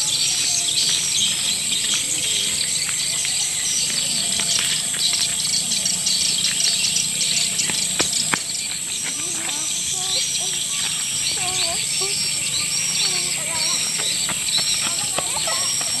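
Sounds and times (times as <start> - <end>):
swiftlets twittering chirps: 4.6 - 16.0.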